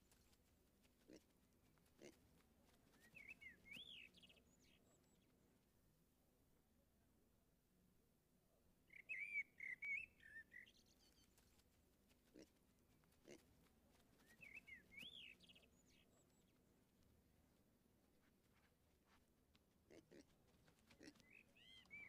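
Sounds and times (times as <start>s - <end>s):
songbird singing: 2.9s - 5.4s, 8.9s - 11.6s, 14.2s - 16.7s, 20.9s - 22.0s.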